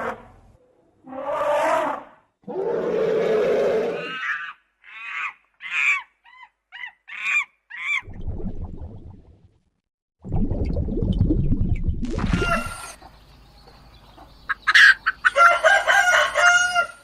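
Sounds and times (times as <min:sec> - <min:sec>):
animal calls falling in pitch: 0:12.2 - 0:13.0.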